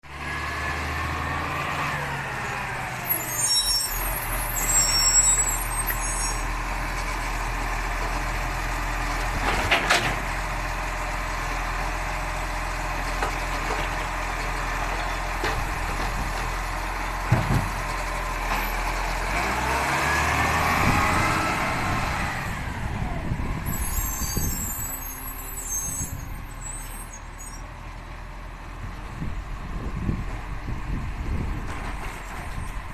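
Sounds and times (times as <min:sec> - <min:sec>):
high squeaks: 0:03.1 - 0:06.5, 0:23.7 - 0:27.6
garbage truck engine revving: 0:18.7 - 0:24.2.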